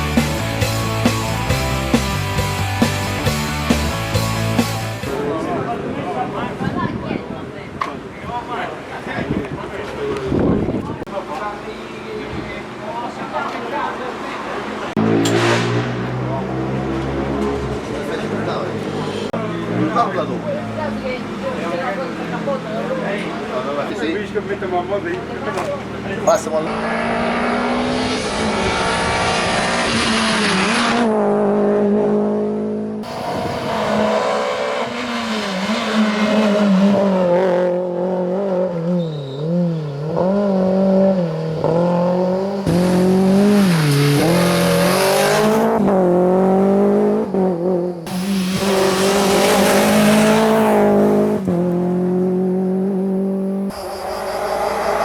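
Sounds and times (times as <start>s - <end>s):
rally car engine revving: 14.4s - 23.3s, 25.3s - 55.0s.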